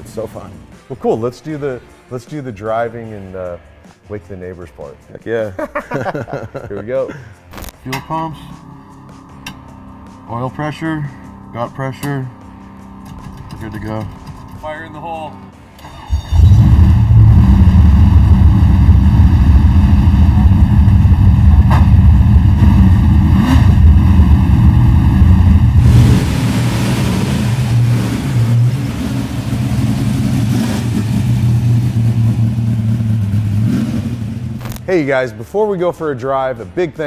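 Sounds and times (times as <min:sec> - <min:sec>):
race car engine idling: 0:16.3 - 0:34.6.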